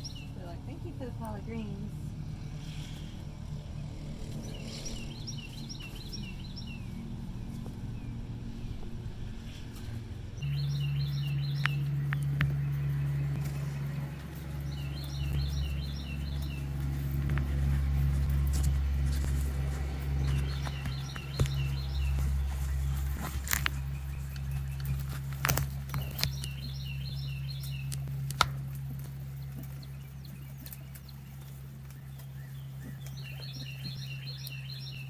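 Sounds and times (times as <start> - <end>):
songbird chirping: 0.0 - 35.0
steady low rumble: 0.0 - 35.0
sharp snaps and clicks: 11.6 - 12.6, 23.4 - 26.6, 27.6 - 29.8.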